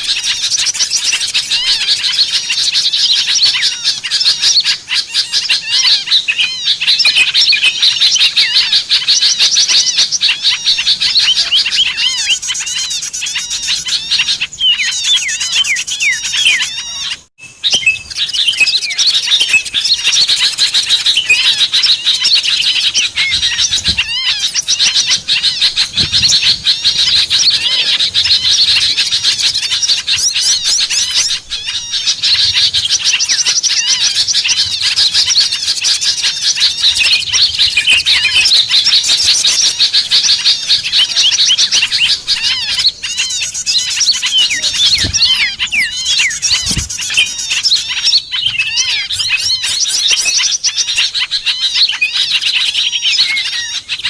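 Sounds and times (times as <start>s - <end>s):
chorus of songbirds chirping: 0.0s - 54.0s.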